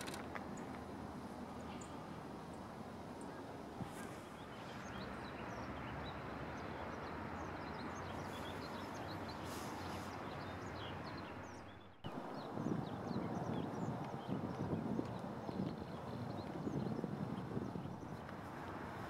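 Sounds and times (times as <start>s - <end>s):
small birds chirping: 3.2s - 18.3s.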